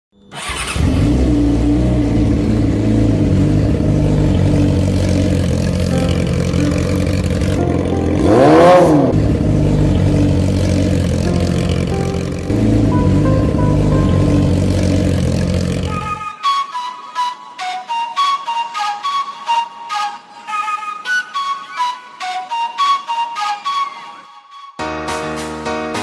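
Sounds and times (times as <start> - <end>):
motorcycle engine running: 0.4 - 16.2.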